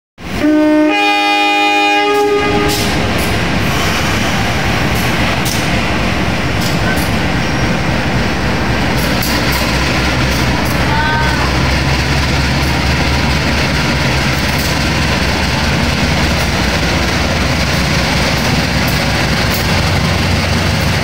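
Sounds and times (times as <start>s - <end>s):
train rumbling past: 0.2s - 21.0s
locomotive horn: 0.3s - 3.1s, 10.8s - 11.7s
wheels clacking over rail joints: 4.7s - 7.4s, 8.8s - 21.0s.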